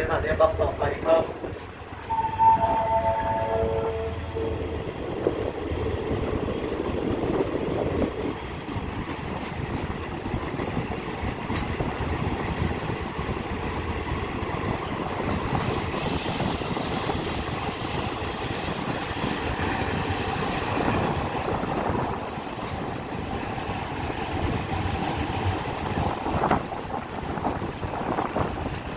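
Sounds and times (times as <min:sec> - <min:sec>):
train rumble and rattle: 0:00.0 - 0:28.9
wheels clacking over rail joints: 0:05.4 - 0:17.1, 0:19.0 - 0:28.9.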